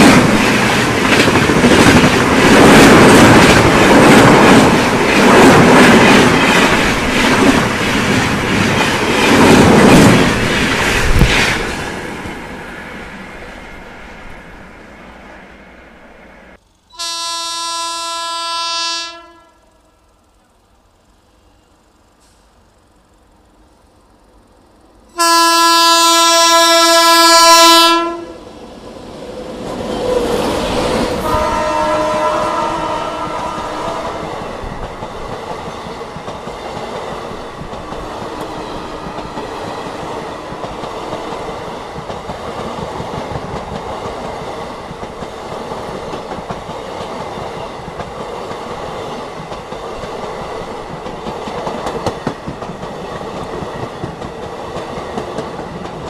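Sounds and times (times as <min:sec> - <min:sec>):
wheels clacking over rail joints: 0:00.0 - 0:12.5, 0:33.2 - 0:56.0
train rushing past: 0:00.0 - 0:17.2, 0:19.2 - 0:56.0
locomotive horn: 0:16.9 - 0:19.9, 0:25.1 - 0:28.4, 0:31.2 - 0:34.4.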